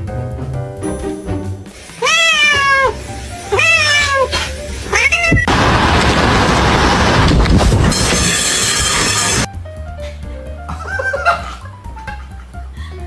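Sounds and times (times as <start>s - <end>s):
cat meowing: 2.0s - 5.5s
loud steady rushing noise: 5.5s - 9.5s.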